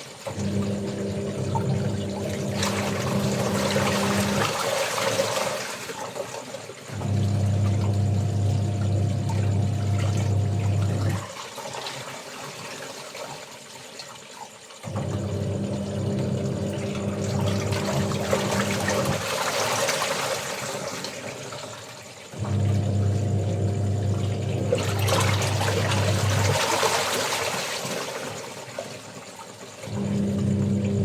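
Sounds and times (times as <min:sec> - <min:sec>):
water sloshing in drum: 0:00.0 - 0:31.0
washing machine motor humming: 0:00.1 - 0:05.0, 0:06.8 - 0:11.3, 0:14.8 - 0:20.0, 0:22.3 - 0:27.1, 0:29.8 - 0:31.0.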